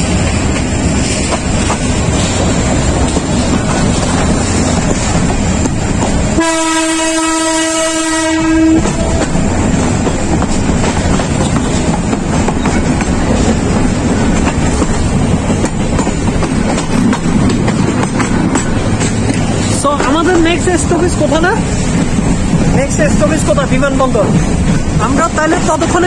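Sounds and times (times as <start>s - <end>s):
moving train running noise: 0.0s - 26.0s
locomotive horn: 6.4s - 9.6s.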